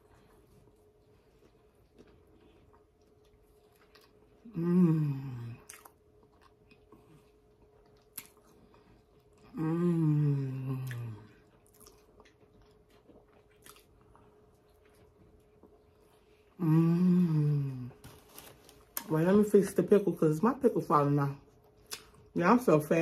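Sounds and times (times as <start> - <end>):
person chewing: 0.0 - 16.6
woman humming: 4.4 - 5.7, 9.5 - 11.4, 16.6 - 18.0.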